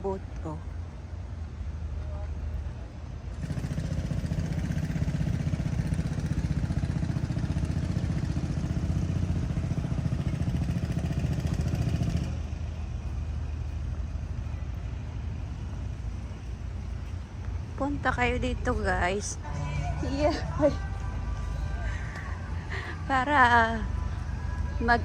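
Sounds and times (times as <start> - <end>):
engine throbbing: 1.6 - 25.0
low rumble: 5.6 - 25.0.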